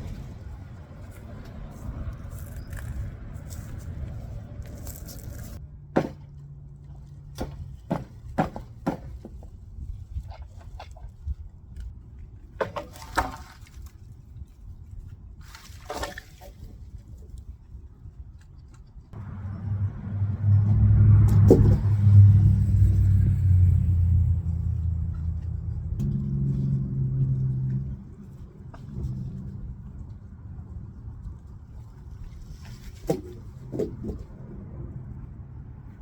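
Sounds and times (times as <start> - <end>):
engine running at low pitch: 19.1 - 32.4.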